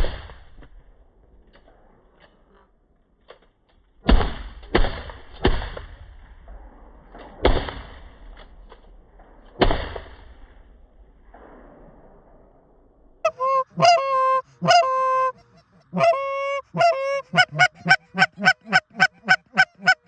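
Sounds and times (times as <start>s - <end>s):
shotgun blasts with echo: 4.0s - 12.6s.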